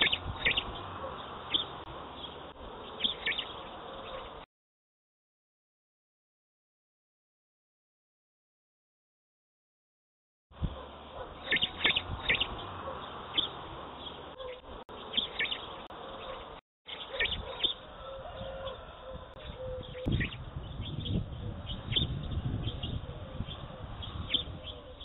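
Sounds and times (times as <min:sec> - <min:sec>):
outdoor background noise: 0:00.0 - 0:04.5, 0:10.5 - 0:25.0
small birds chirping: 0:00.0 - 0:04.5, 0:10.6 - 0:18.8, 0:19.4 - 0:25.0.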